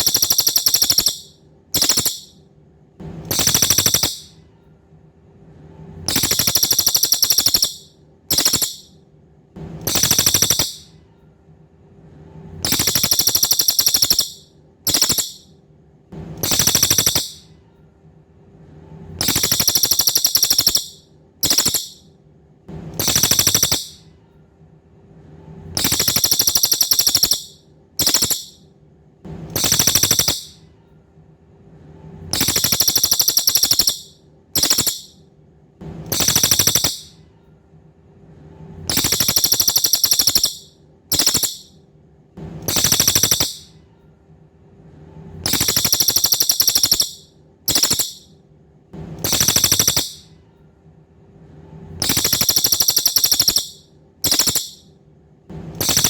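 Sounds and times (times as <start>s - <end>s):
songbird rapid trilled call: 0.0s - 2.3s, 3.3s - 4.3s, 6.1s - 8.9s, 9.9s - 10.9s, 12.7s - 15.4s, 16.4s - 17.4s, 19.2s - 22.0s, 23.0s - 24.0s, 25.8s - 28.6s, 29.6s - 30.6s, 32.4s - 35.1s, 36.1s - 37.1s, 38.9s - 41.7s, 42.7s - 43.7s, 45.5s - 48.2s, 49.3s - 50.2s, 52.0s - 54.8s
faint steady hum: 0.0s - 56.0s.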